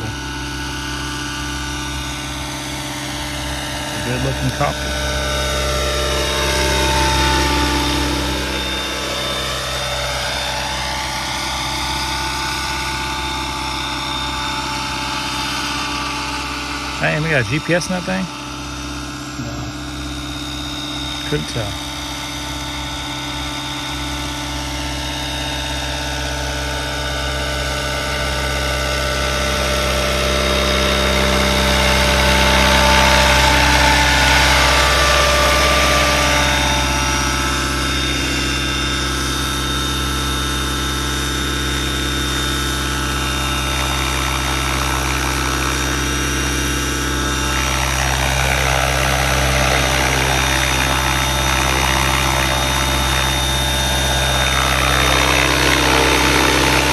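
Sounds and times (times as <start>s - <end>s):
rc helicopter motor whine: 0.0s - 56.9s
rotor noise: 42.3s - 56.9s.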